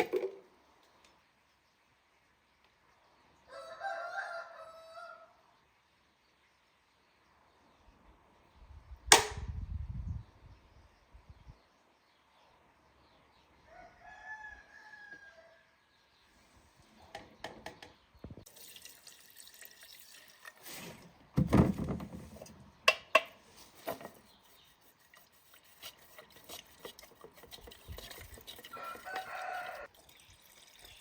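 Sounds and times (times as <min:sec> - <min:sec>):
rooster crowing: 0:03.5 - 0:05.4, 0:13.7 - 0:15.7, 0:28.7 - 0:29.9.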